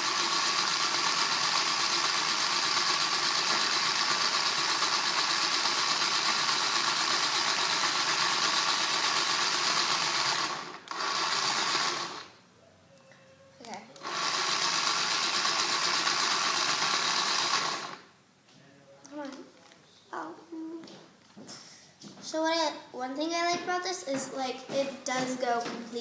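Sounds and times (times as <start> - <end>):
small toy motor whirring: 0.0 - 12.4, 13.9 - 18.1.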